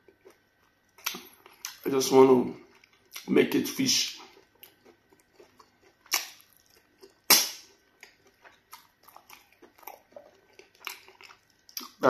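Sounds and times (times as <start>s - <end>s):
wet chewing clicks: 4.2s - 12.0s
loud sharp mouth smack: 7.3s - 7.7s.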